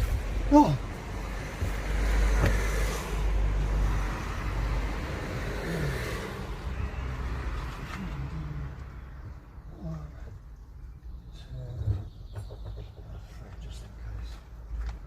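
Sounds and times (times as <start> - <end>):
motor vehicle passing: 0.0 - 10.3.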